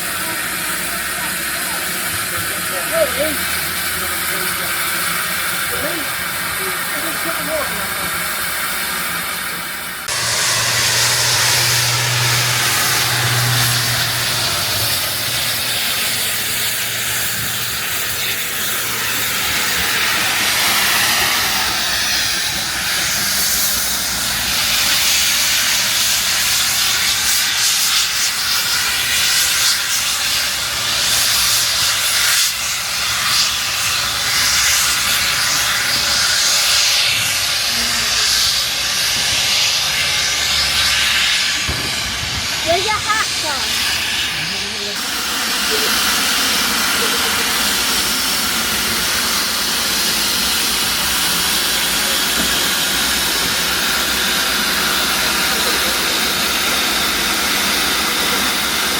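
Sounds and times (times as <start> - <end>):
steam locomotive hissing steam: 0.0 - 58.9
low hum: 10.1 - 22.8.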